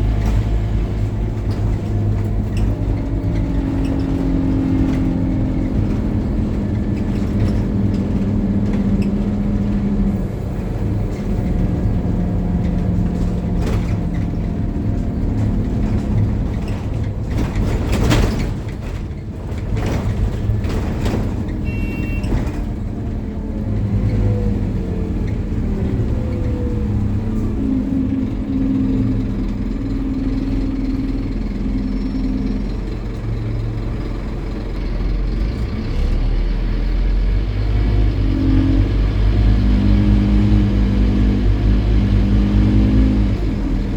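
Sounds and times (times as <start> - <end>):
bus engine changing gears: 0.0 - 43.9
short high beep: 21.7 - 22.3.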